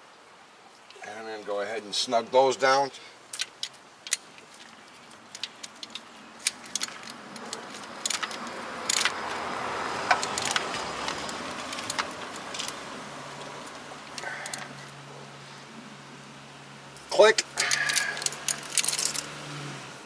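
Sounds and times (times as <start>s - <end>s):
metal tools clinking: 3.3s - 9.4s, 10.1s - 14.8s, 17.0s - 19.3s
ratchet wrench clicking: 5.3s - 9.2s, 10.0s - 12.8s, 17.6s - 19.3s.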